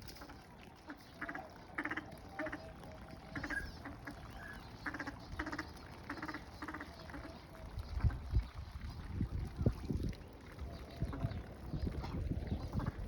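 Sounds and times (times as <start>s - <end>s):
swans calling: 0.2s - 7.6s.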